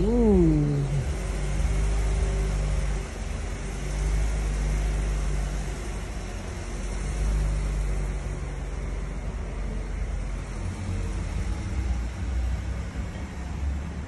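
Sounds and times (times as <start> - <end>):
faint hum: 0.0 - 1.4
car engine idling: 0.0 - 7.1.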